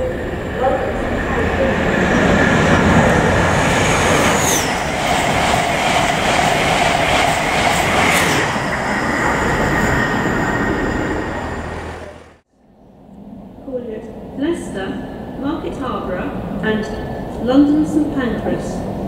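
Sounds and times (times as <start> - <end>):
train passing at speed: 0.0 - 19.0.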